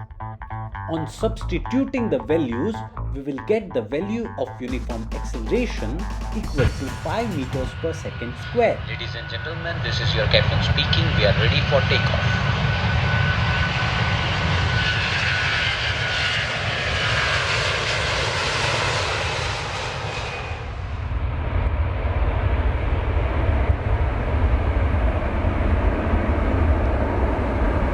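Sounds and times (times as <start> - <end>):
jet engine rumble: 5.7 - 27.9
jet engine whine and hiss: 7.7 - 27.9.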